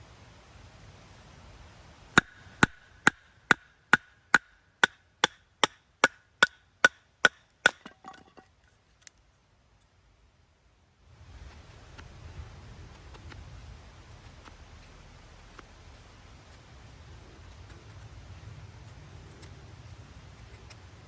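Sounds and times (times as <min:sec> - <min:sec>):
tool striking with ringing blows: 0:02.2 - 0:08.4.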